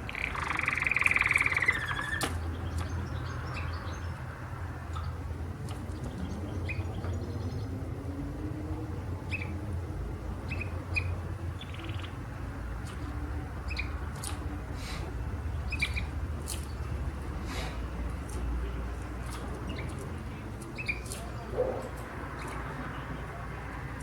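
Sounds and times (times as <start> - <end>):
canary chirping: 0.0 - 4.3, 4.9 - 7.7, 9.2 - 9.6, 10.4 - 14.3, 15.5 - 17.0, 18.6 - 24.0
steady low hum: 0.0 - 24.0.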